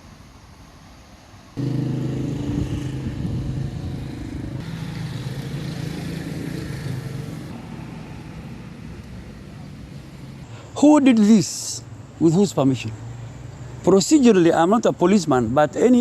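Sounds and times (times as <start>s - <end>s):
vehicle engine running: 1.6s - 10.4s.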